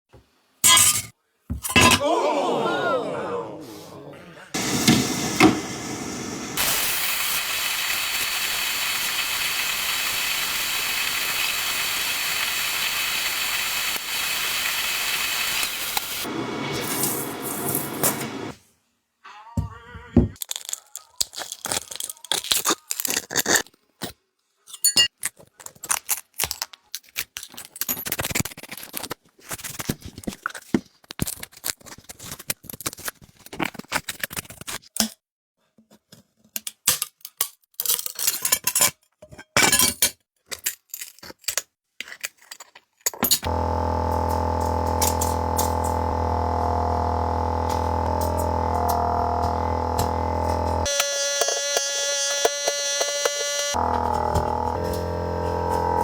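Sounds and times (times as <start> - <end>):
droning hum with held tones: 43.5 - 56.0.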